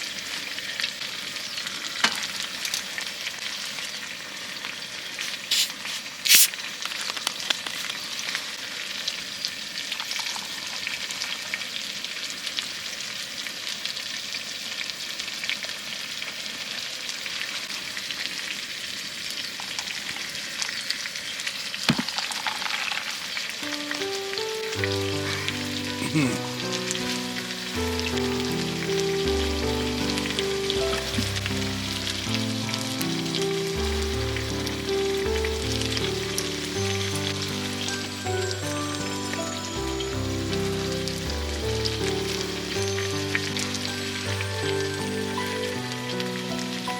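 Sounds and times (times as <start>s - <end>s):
food sizzling and crackling: 0.0s - 46.9s
background music: 23.6s - 46.9s.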